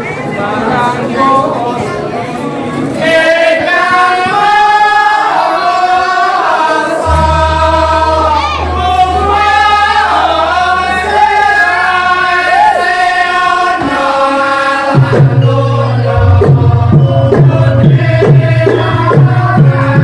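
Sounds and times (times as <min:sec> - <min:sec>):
singer holding wavering notes: 0:06.8 - 0:20.0
drum strokes bending down in pitch: 0:07.0 - 0:12.2, 0:14.8 - 0:20.0
held gamelan tones: 0:07.0 - 0:12.2.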